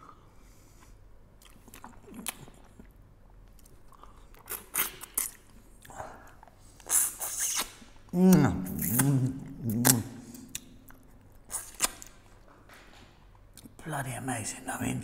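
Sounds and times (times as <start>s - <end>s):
man chewing food: 0.0s - 13.8s.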